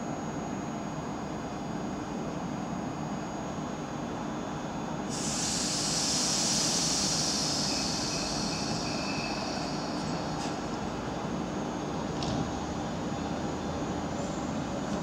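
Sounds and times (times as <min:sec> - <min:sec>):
train hum and rumble: 0:00.0 - 0:15.0
high hiss: 0:05.1 - 0:10.6
faint squeal: 0:06.8 - 0:10.6.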